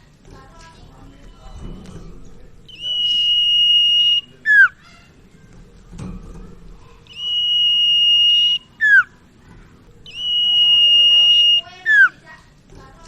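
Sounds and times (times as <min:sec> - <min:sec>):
bird whistling song: 0:02.6 - 0:05.0, 0:07.1 - 0:09.2, 0:10.0 - 0:12.2.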